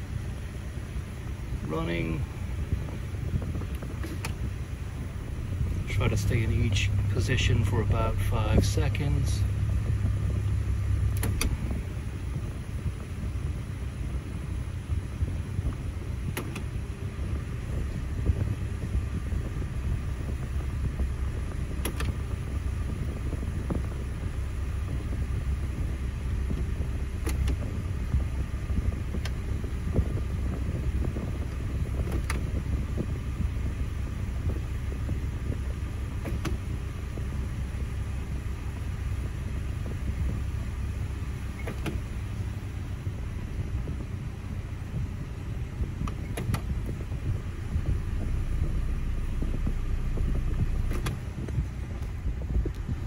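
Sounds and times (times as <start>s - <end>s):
car engine idling: 0.0s - 53.0s
gear selector clicks: 3.6s - 4.4s, 11.1s - 11.7s, 16.3s - 16.7s, 21.8s - 22.3s, 27.2s - 27.7s, 32.0s - 32.5s, 36.2s - 36.7s, 41.6s - 42.1s, 46.0s - 47.0s, 49.4s - 52.9s.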